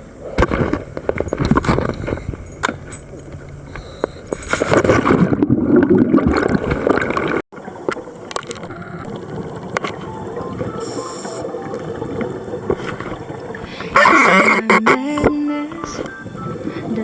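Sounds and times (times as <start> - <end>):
steady underwater rush: 3.3 - 14.9
underwater bubbles gurgling: 3.3 - 17.0.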